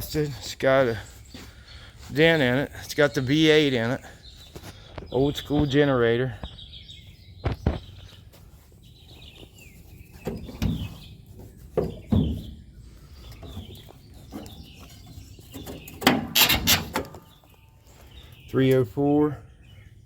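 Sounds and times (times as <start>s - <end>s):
birds chirping: 0.0s - 20.0s
knocks and thumps: 10.1s - 12.6s
clunks: 10.1s - 17.4s.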